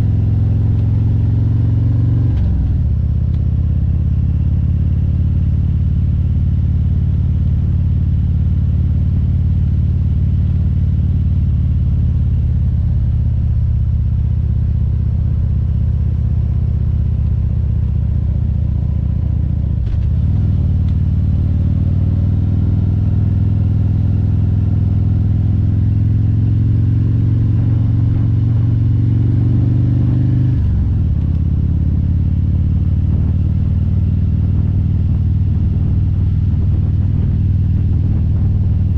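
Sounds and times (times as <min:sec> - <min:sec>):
motorcycle engine revving: 0:18.3 - 0:38.9.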